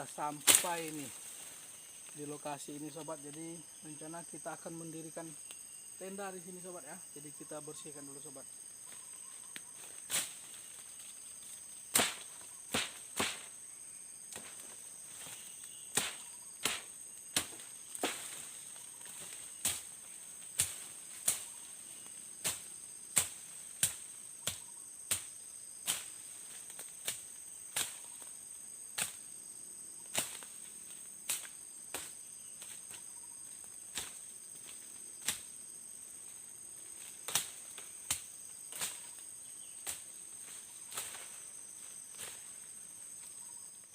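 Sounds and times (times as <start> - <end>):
insects buzzing: 0.0 - 43.9
sharp chopping strikes: 0.4 - 1.0, 11.9 - 13.5, 15.9 - 18.4, 22.4 - 25.3.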